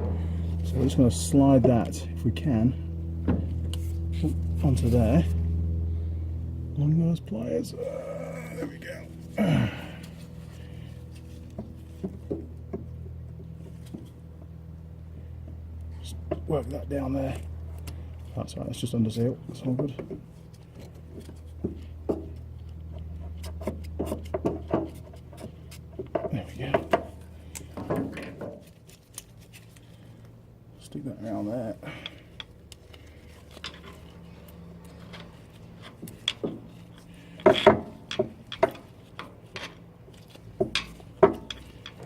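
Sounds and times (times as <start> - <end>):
steady low hum: 0.0 - 42.0
fuel hose clicks and knocks: 11.4 - 14.2, 19.5 - 29.3, 34.9 - 42.0.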